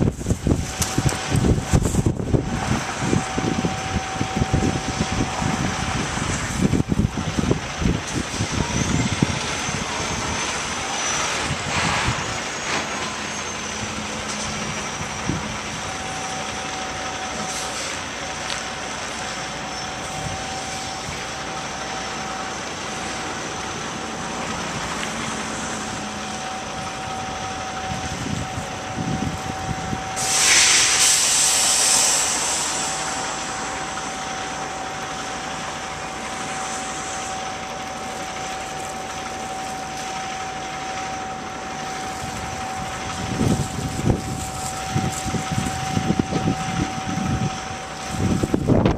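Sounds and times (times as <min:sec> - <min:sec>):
thin steady whine: 0:00.0 - 0:48.9
truck engine running: 0:00.0 - 0:48.9
loud hiss burst: 0:30.2 - 0:34.8, 0:35.4 - 0:37.6.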